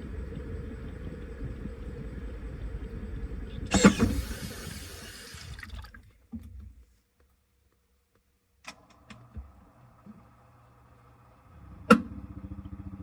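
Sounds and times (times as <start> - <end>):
washing machine humming: 3.6 - 6.7.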